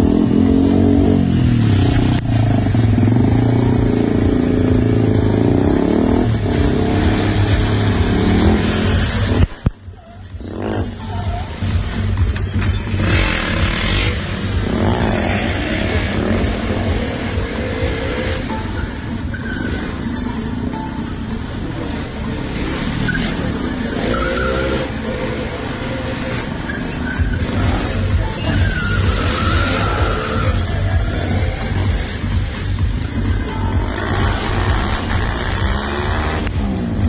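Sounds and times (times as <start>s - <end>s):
loud music with heavy bass: 0.0s - 37.0s
motorcycle engine revving: 0.0s - 37.0s
short squealing tones: 9.8s - 14.2s, 17.9s - 21.0s, 22.7s - 32.2s.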